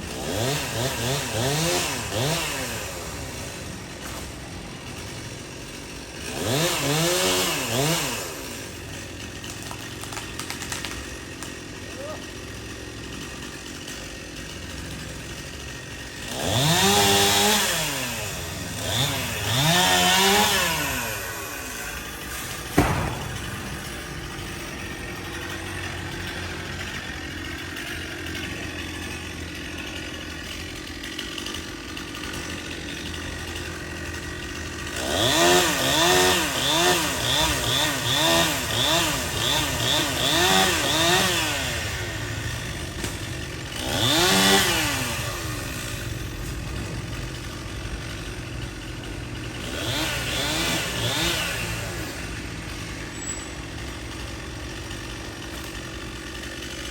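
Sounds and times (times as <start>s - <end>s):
chainsaw idling and revving: 0.0s - 56.9s
sharp knock: 22.7s - 24.7s.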